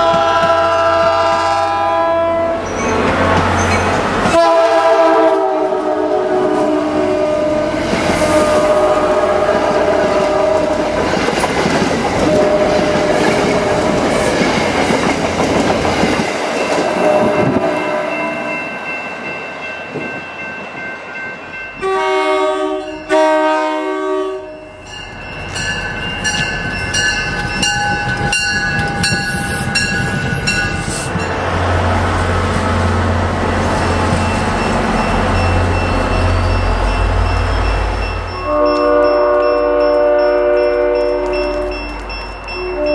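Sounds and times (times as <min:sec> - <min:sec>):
train wheels clacking on rails: 0:00.0 - 0:01.8, 0:07.6 - 0:20.8, 0:25.0 - 0:31.6, 0:32.2 - 0:42.9
locomotive air horn: 0:00.0 - 0:03.2, 0:04.3 - 0:11.0, 0:12.2 - 0:14.0, 0:17.0 - 0:18.5, 0:21.8 - 0:24.8, 0:38.4 - 0:41.7, 0:42.6 - 0:42.9
diesel locomotive rumble: 0:00.0 - 0:18.6, 0:24.8 - 0:42.9.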